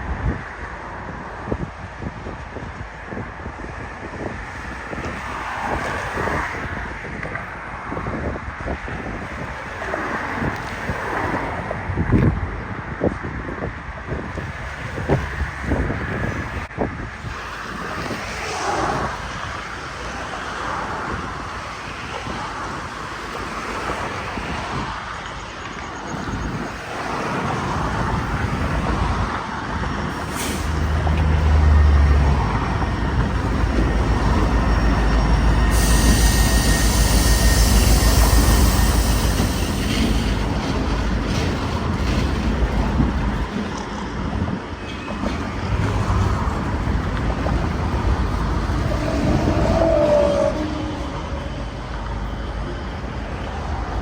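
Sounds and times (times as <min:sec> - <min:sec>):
freight train rumbling past: 0:00.0 - 0:54.0
high hiss: 0:34.6 - 0:40.5.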